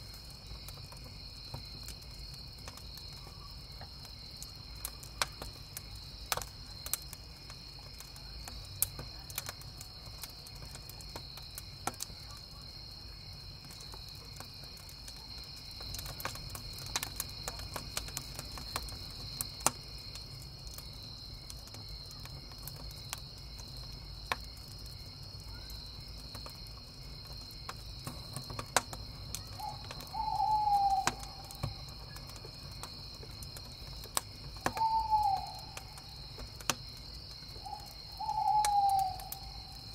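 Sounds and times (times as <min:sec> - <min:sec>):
crickets chirring: 0:00.0 - 0:39.9
wood fire crackling and popping: 0:00.0 - 0:39.9
owl hooting: 0:29.6 - 0:31.5, 0:34.7 - 0:35.9, 0:37.6 - 0:39.6.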